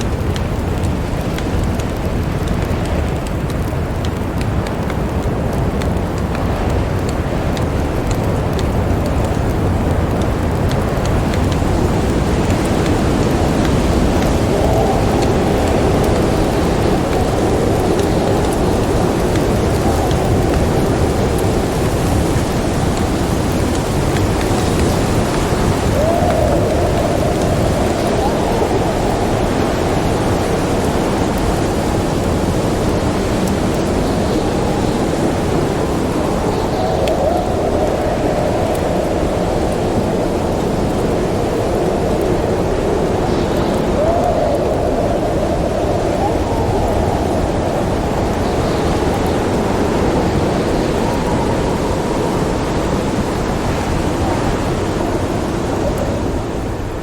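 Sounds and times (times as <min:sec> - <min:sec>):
faint high ticks: 0:00.0 - 0:39.8
rain: 0:00.0 - 0:57.0
wind: 0:00.0 - 0:57.0.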